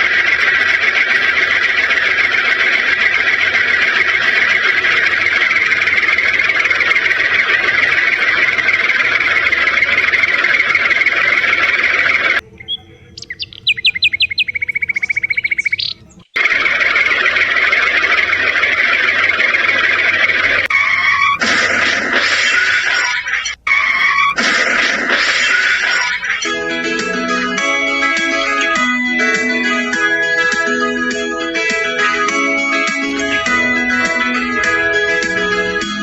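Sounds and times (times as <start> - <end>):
bird chirps and trill: 0.0 - 21.4, 25.2 - 26.7.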